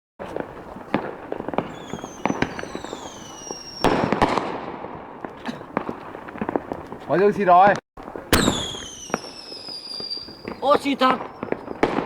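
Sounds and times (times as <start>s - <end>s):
fireworks popping: 0.2s - 12.0s
fireworks whistling: 0.3s - 4.5s, 8.2s - 12.0s
firework burst: 0.9s - 4.8s, 8.3s - 12.0s.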